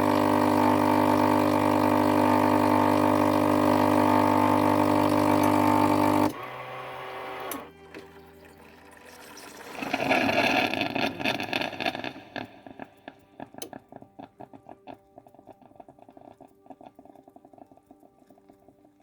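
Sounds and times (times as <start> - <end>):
coffee machine hissing rush: 0.0 - 7.6, 9.2 - 13.8
faint background music: 6.4 - 10.8, 12.5 - 19.0.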